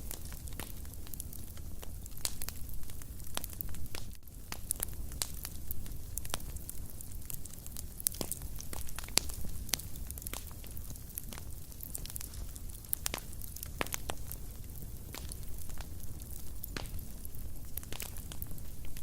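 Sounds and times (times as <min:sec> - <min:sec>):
low rumble of flames: 0:00.0 - 0:19.0
wood fire crackling and popping: 0:00.0 - 0:19.0.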